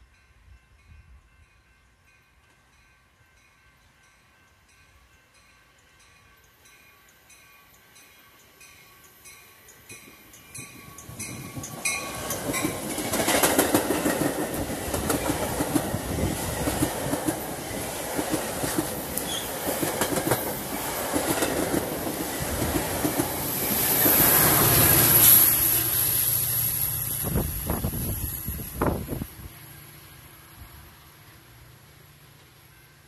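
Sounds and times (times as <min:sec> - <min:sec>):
diesel locomotive passing: 0:00.0 - 0:33.0
train cars rushing past: 0:08.3 - 0:33.0
wheels clacking over rails: 0:11.0 - 0:24.6.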